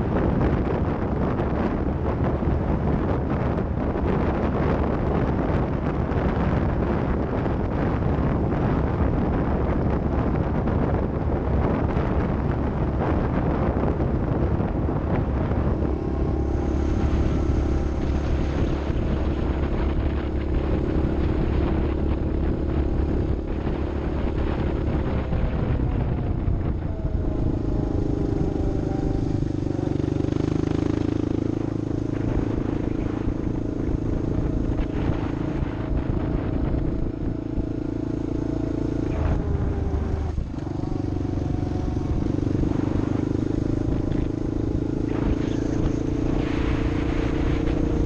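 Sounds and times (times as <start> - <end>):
vehicle engine running: 0.0 - 48.0
wind rushing over microphone: 0.0 - 48.0.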